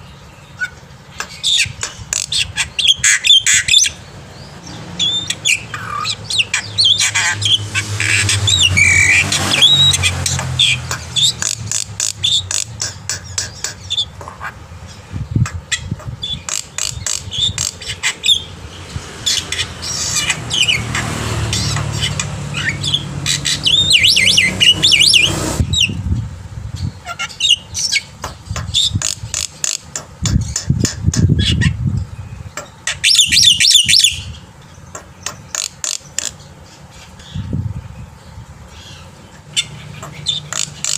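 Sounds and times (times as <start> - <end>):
starling singing: 0.0 - 40.9.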